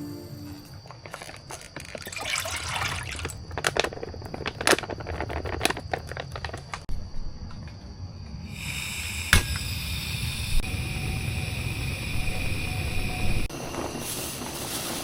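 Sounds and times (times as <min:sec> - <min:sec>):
liquid pouring and splashing: 0:01.8 - 0:03.5.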